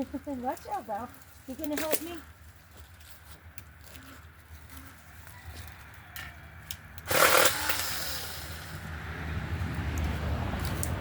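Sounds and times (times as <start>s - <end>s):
mini chainsaw cutting branch: 7.0s - 8.8s.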